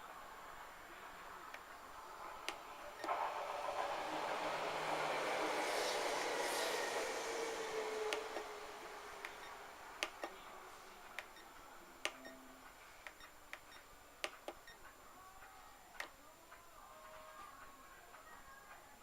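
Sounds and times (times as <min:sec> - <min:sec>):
faint hiss: 0:00.0 - 0:19.0
sharp clicks and ticks: 0:09.2 - 0:10.4, 0:13.0 - 0:18.8.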